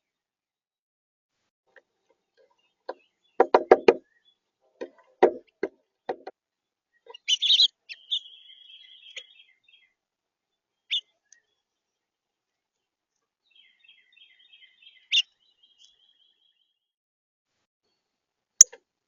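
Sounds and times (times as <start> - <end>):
knocks at a bird feeder: 3.4 - 4.0, 4.8 - 6.3
bird calls: 6.9 - 10.0, 10.8 - 11.6, 13.5 - 16.8
buzzy bird trill: 7.1 - 9.8.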